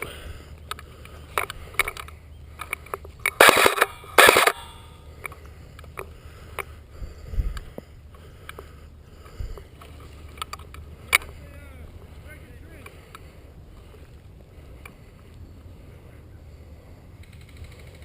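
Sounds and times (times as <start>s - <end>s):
small clicks: 0.0s - 6.8s, 9.5s - 11.4s, 17.2s - 18.0s
airsoft rifle full-auto bursts: 3.3s - 4.9s.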